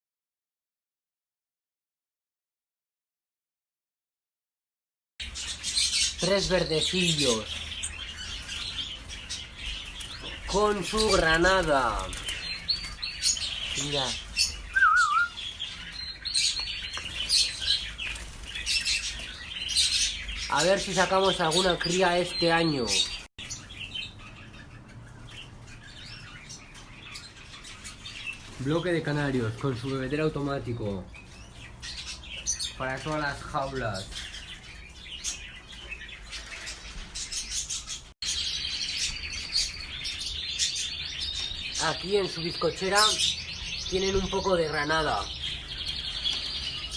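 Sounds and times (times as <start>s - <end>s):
birds chirping: 5.2s - 46.9s
canary singing rolling trill: 5.2s - 46.9s
wavering whistle: 14.8s - 15.3s.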